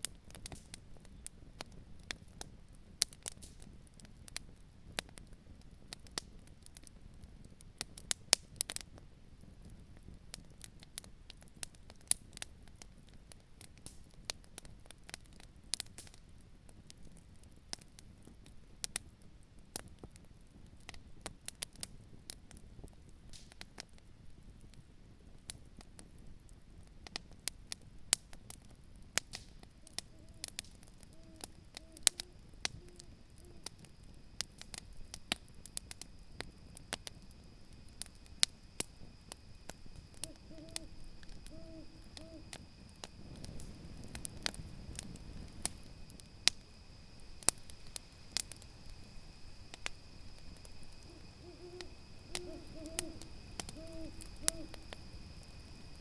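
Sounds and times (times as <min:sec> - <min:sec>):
campfire crackling and popping: 0:00.0 - 0:56.0
steady low rush: 0:37.6 - 0:56.0.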